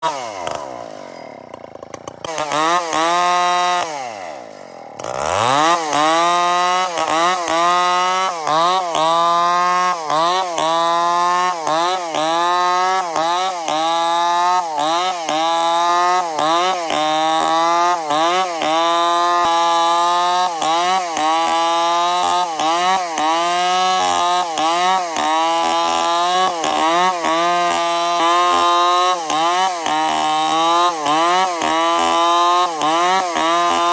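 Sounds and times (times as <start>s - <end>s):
chainsaw engine revving: 0.0s - 33.9s.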